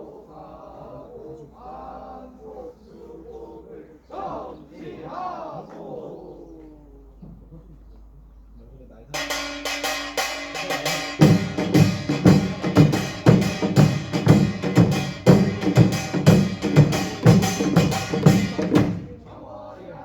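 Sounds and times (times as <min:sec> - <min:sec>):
small gongs clanging: 0:09.2 - 0:19.3
drums: 0:09.2 - 0:19.7.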